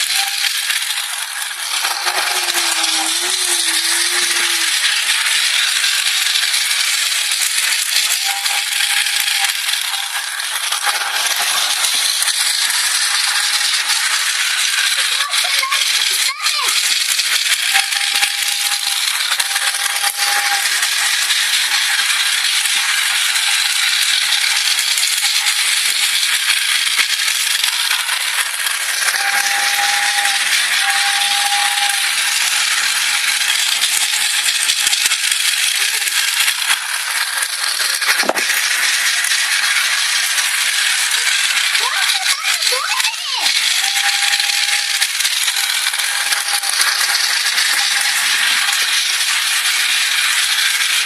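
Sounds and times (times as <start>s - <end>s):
train rattling and clicking: 0.0s - 51.0s
short whistle-like tones: 29.2s - 32.2s.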